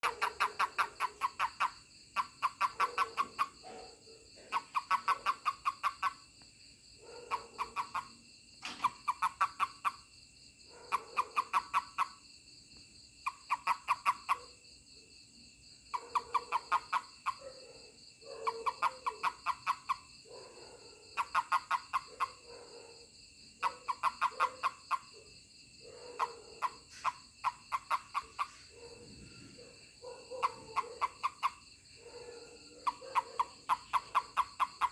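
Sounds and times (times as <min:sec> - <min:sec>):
toad pulsed chirps: 0:00.0 - 0:03.6, 0:04.5 - 0:06.2, 0:07.3 - 0:10.0, 0:23.6 - 0:25.0, 0:26.6 - 0:28.6, 0:30.4 - 0:31.6, 0:32.8 - 0:34.9.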